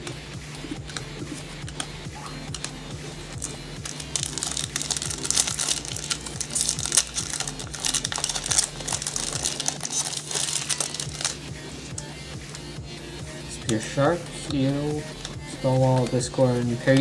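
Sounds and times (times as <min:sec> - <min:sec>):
foil wrapper crinkling: 0:03.3 - 0:12.1.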